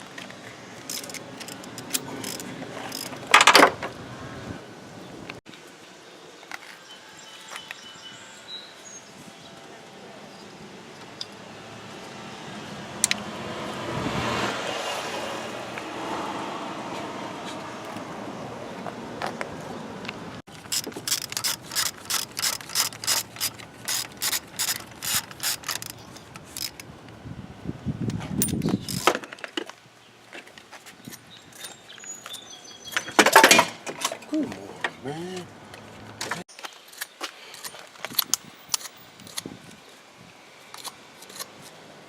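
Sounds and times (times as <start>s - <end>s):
socket ratchet clicking: 20.6s - 26.8s.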